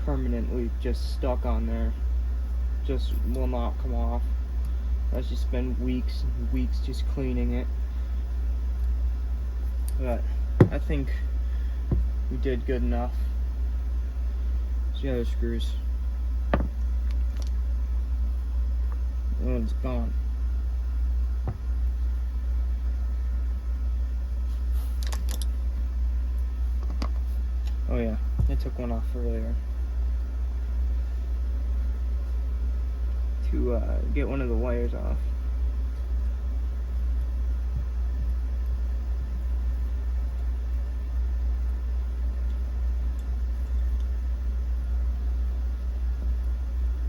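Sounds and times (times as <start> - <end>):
steady low rumble: 0.0 - 47.0
light clicks of small parts: 24.9 - 25.6.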